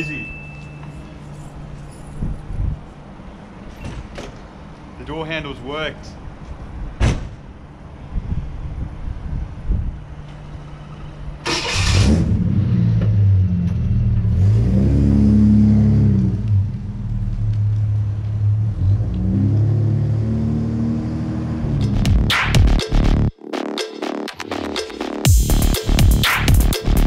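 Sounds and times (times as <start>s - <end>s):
car engine starting and revving: 11.4s - 17.2s, 18.4s - 22.8s.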